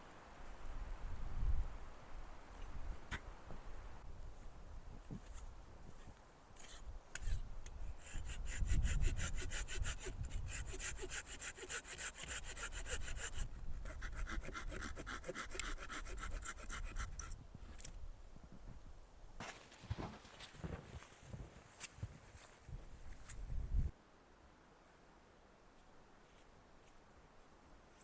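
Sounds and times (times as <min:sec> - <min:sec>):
hand saw cutting wood: 0:06.6 - 0:17.3.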